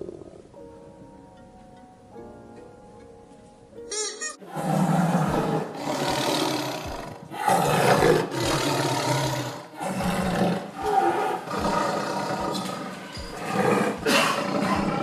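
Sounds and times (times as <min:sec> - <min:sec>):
big cat roaring and growling: 0:00.0 - 0:00.5, 0:04.4 - 0:15.0.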